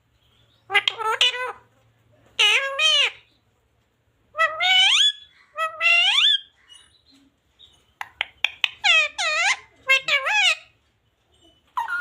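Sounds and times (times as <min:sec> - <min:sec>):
parrot calling: 0:00.6 - 0:01.7, 0:02.4 - 0:03.3, 0:04.3 - 0:07.1, 0:08.0 - 0:10.8, 0:11.6 - 0:12.0.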